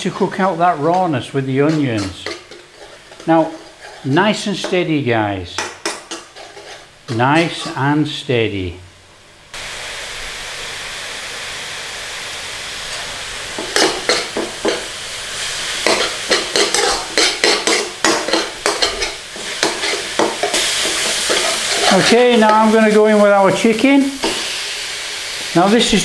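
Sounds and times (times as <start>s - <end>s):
onion sizzling in oil: 0.0s - 4.8s, 9.5s - 26.0s
utensil stirring and scraping pan: 0.0s - 4.9s, 5.6s - 7.9s, 12.9s - 23.0s.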